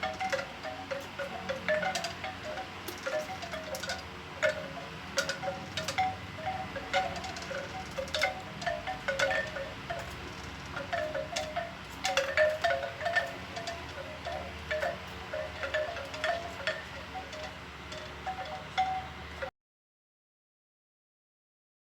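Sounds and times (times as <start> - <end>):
bamboo wind chime clonking: 0.0 - 19.5
low wind rumble: 0.0 - 19.5.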